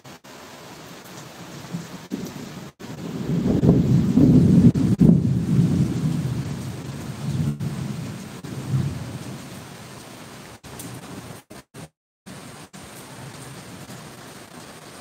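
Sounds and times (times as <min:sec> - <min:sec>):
heavy rain falling: 0:00.0 - 0:15.0
thunder rumbling: 0:01.5 - 0:10.0.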